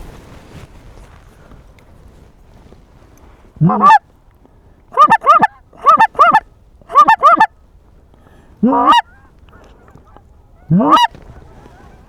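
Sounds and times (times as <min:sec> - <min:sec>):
goose clucking: 0:03.6 - 0:04.0, 0:05.0 - 0:07.5, 0:08.6 - 0:12.0
goose honking: 0:03.6 - 0:04.0, 0:05.0 - 0:07.5, 0:08.6 - 0:12.0.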